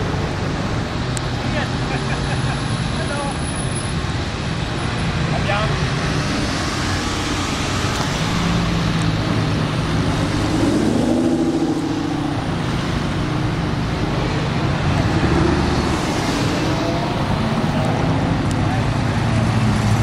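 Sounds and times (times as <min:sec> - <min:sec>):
sports car engines passing: 0:00.0 - 0:20.0
engine accelerating: 0:05.8 - 0:20.0.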